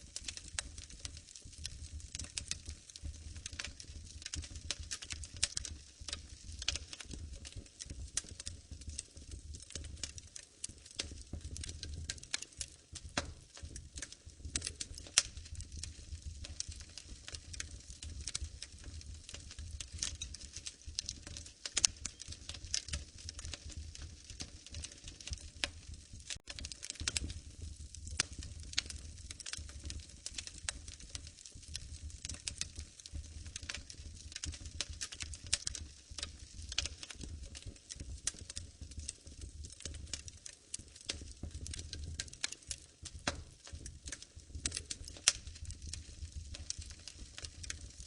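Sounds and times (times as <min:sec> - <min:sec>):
low rumble of flames: 0:00.0 - 0:48.0
wood fire crackling and popping: 0:00.0 - 0:48.0.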